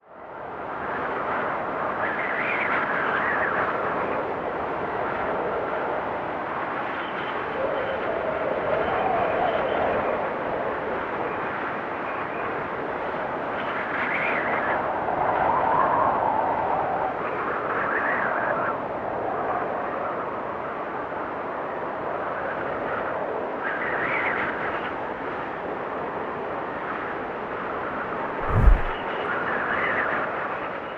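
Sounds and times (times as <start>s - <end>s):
drone propellers whirring: 28.4s - 29.0s
rush of air: 28.4s - 29.0s.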